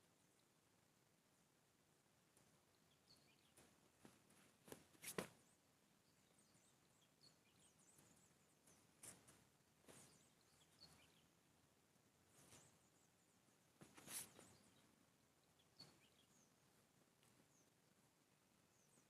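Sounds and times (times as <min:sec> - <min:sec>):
soft clicks and rustles: 0:03.4 - 0:05.5, 0:07.9 - 0:11.2, 0:13.8 - 0:14.9.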